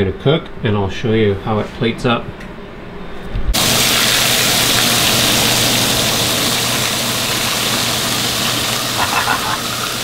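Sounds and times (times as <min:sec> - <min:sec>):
fish fillets sizzling in fat: 0:03.6 - 0:10.0.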